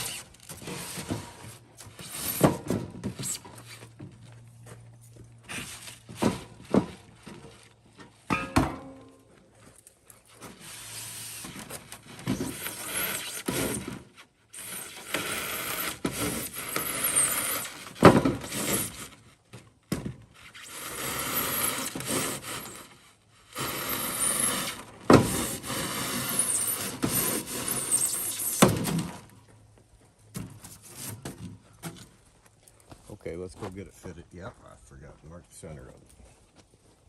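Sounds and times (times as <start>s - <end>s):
foam board cutting strokes: 23.6s - 29.2s, 30.4s - 31.4s.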